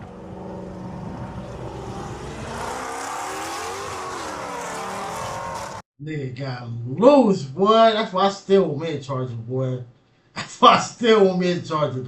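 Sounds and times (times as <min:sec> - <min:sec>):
car engine revving: 0:00.0 - 0:05.8.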